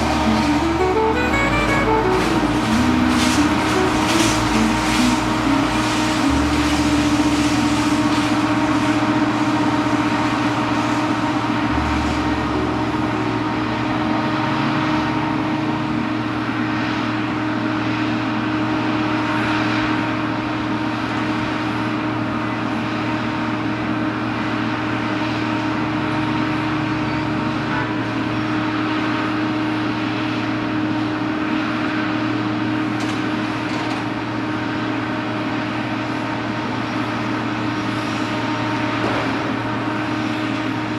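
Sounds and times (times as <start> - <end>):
jet engines running: 0.0 - 40.9.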